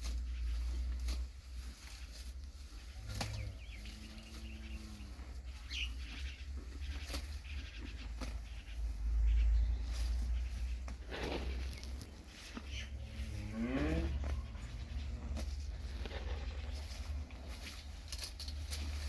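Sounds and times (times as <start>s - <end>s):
steady low rumble: 0.0s - 19.0s
low drawn-out animal call: 12.8s - 17.3s.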